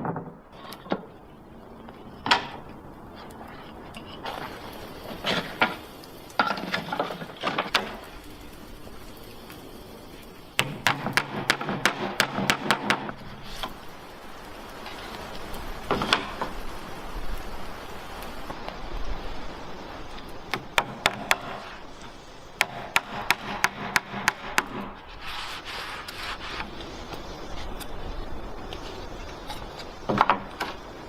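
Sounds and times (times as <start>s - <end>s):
hard objects knocking and clicking: 0.0s - 1.1s
rubbing and scraping: 24.8s - 30.4s.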